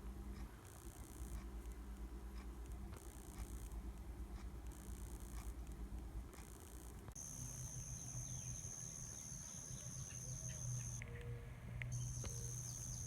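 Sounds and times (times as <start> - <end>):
low steady hum: 0.0 - 13.0
insects trilling: 7.2 - 11.0, 12.0 - 13.0
faint bird chirps: 7.2 - 11.4, 12.0 - 13.0.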